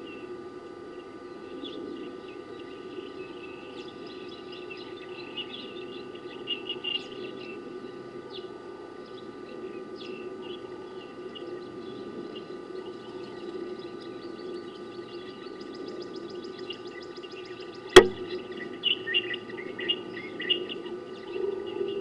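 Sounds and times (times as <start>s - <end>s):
small birds chirping: 0.0s - 22.0s
low hum: 9.0s - 18.8s.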